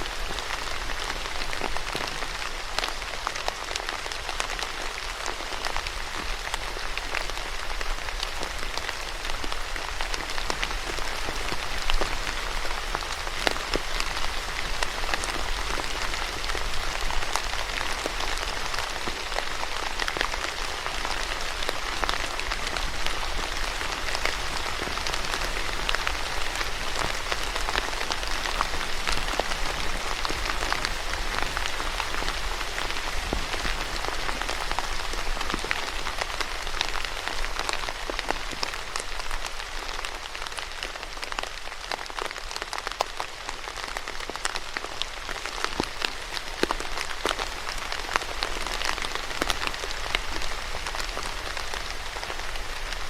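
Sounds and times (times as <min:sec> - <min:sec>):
raindrops ticking on hard surface: 0:00.0 - 0:53.0
steady rain hiss: 0:00.0 - 0:53.0.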